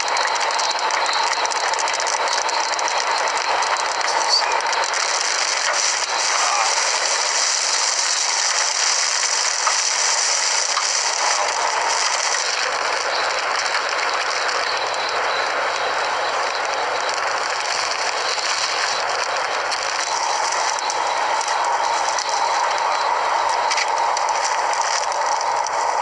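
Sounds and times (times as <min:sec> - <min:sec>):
hail pelting a vehicle: 0:00.0 - 0:26.0.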